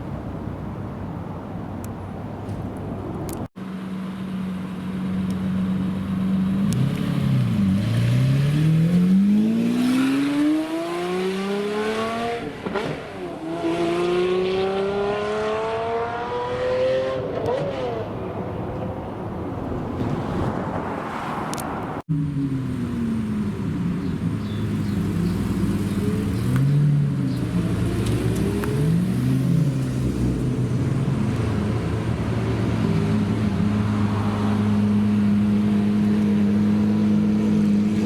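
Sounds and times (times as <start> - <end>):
car engine accelerating: 22.2 - 38.0.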